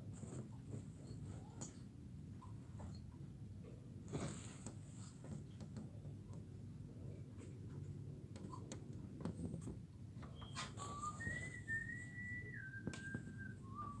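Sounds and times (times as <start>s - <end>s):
person whistling: 10.8s - 14.0s.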